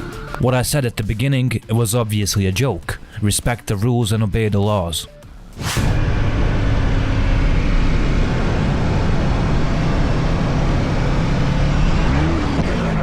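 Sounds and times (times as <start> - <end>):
loud rushing noise: 5.6 - 12.4
motorcycle engine running: 6.0 - 13.0.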